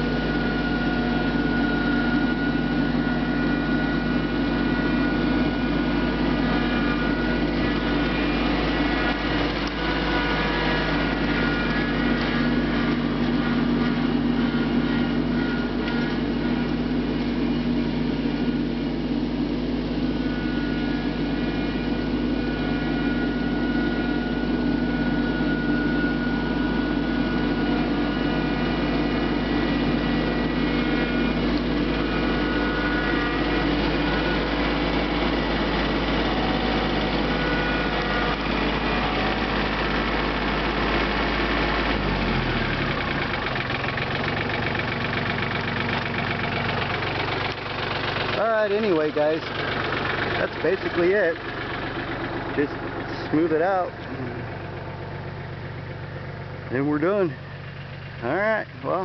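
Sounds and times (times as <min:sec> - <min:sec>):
thin high whine: 0:00.0 - 0:41.0
tractor diesel engine running: 0:00.0 - 0:59.0.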